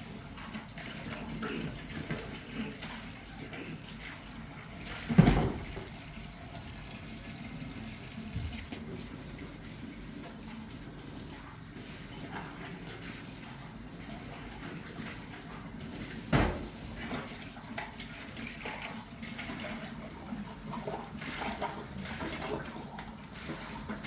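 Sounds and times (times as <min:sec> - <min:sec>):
running water splashing: 0:00.0 - 0:24.0.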